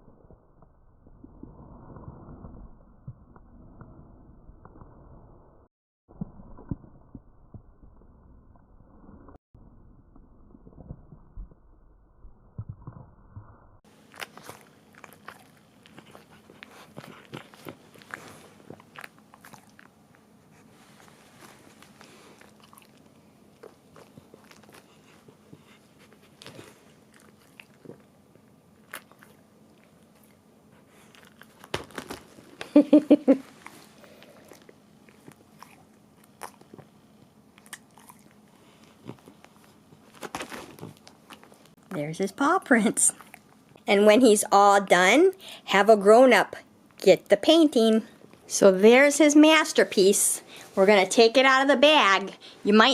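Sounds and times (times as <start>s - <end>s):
dog licking: 14.1s - 20.0s.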